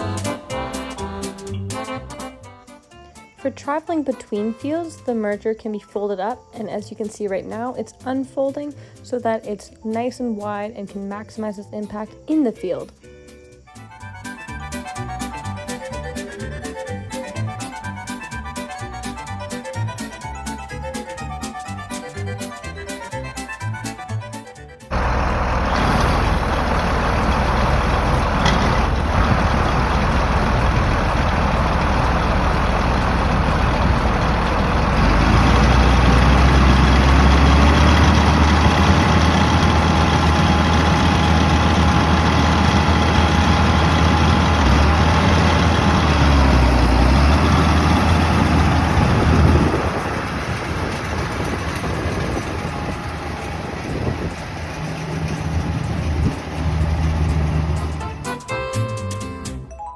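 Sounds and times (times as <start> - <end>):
farm machinery engine running: 24.9 - 58.5.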